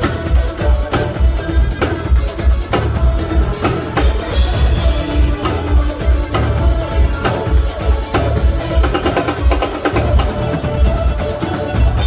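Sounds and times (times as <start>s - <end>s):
heavy bass line: 0.0s - 12.0s
live band playing: 0.0s - 12.0s.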